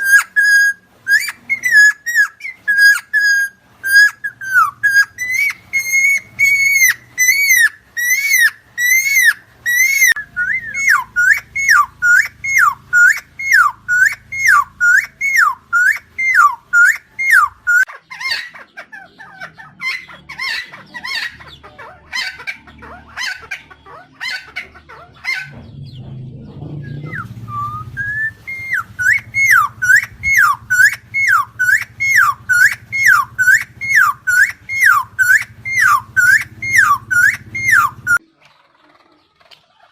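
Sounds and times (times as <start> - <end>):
bird calling whistled notes: 0.0 - 17.9, 25.3 - 38.2.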